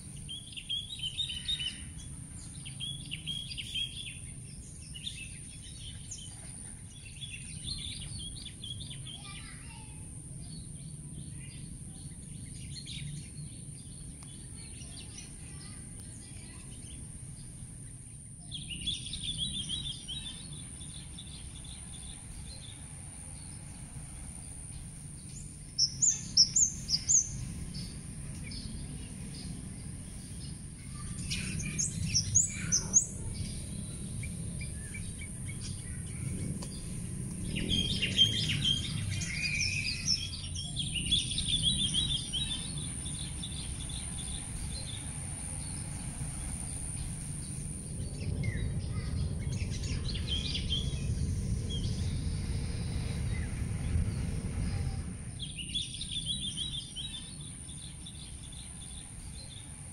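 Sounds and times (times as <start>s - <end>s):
birds chirping and calling: 0.0s - 9.9s, 24.7s - 51.1s
steady low hum: 0.0s - 59.9s.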